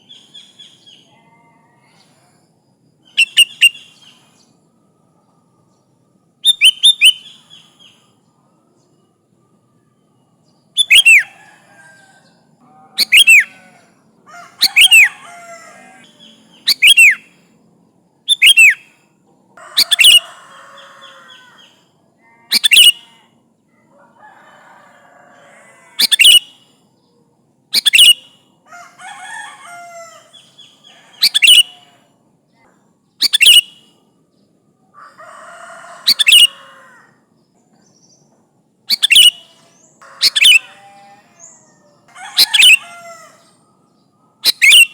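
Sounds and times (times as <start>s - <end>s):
soft bird chattering: 3.1s - 4.1s, 12.9s - 13.7s, 14.6s - 17.2s, 19.8s - 20.2s, 22.5s - 23.1s, 26.0s - 26.5s, 27.8s - 28.3s, 30.3s - 31.9s, 33.2s - 33.8s, 36.0s - 36.6s, 38.9s - 40.8s, 42.3s - 43.1s, 44.4s - 44.9s
bird singing sharp phrases: 3.1s - 4.6s, 6.5s - 8.0s, 10.4s - 11.4s, 12.9s - 13.7s, 14.6s - 17.4s, 18.3s - 18.9s, 19.8s - 20.2s, 22.5s - 23.2s, 26.0s - 26.6s, 27.7s - 28.4s, 30.2s - 31.9s, 33.2s - 34.0s, 36.1s - 36.6s, 37.7s - 44.9s.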